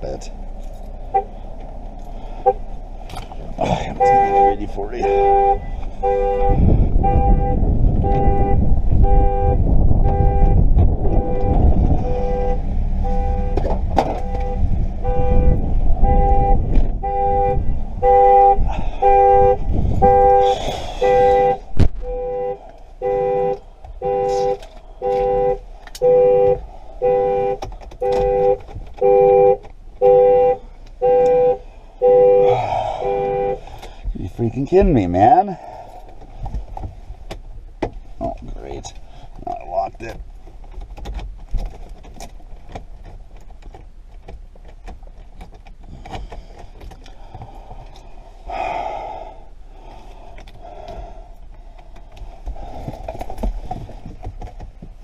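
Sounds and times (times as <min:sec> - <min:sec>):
heavy low rumble: 0:00.0 - 0:29.0, 0:31.6 - 0:40.4, 0:46.0 - 0:55.0
car alarm horn honking: 0:01.1 - 0:01.4, 0:03.8 - 0:33.9.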